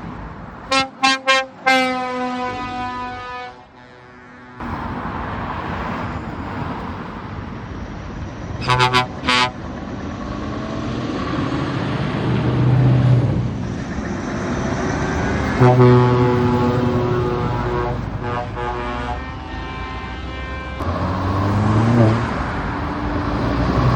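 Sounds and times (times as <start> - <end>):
heavy trucks passing: 0.0 - 23.9
truck horn blasts: 0.7 - 4.6, 8.6 - 9.6, 15.5 - 21.0.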